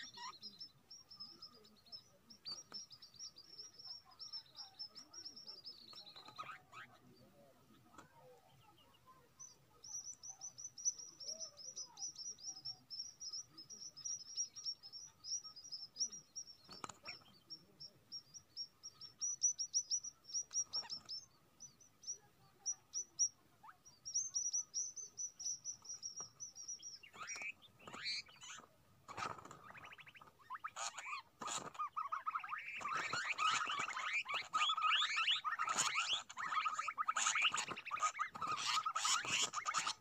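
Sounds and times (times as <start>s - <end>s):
small birds chirping: 0.0s - 40.0s
harsh sweeping bird calls: 9.9s - 40.0s.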